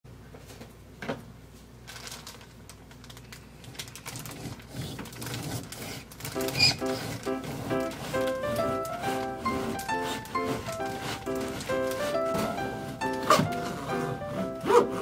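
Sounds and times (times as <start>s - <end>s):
clicks and rustles of bread handling: 0.3s - 13.9s
music: 6.3s - 15.0s.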